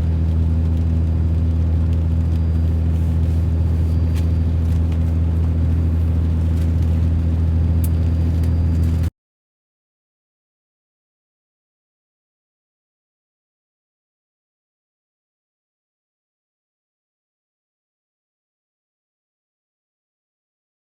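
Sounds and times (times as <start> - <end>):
vehicle engine droning: 0.0 - 9.1.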